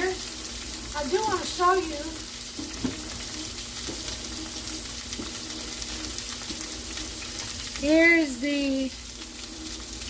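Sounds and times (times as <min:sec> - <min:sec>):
ribs sizzling in a pan: 0:00.0 - 0:10.0.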